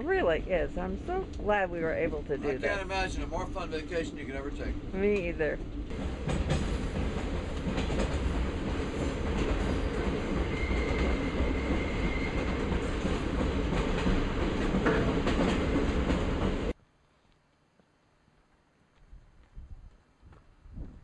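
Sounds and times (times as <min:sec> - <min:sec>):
train rumbling: 0:00.0 - 0:16.8
faint wheel squeal: 0:10.5 - 0:12.5.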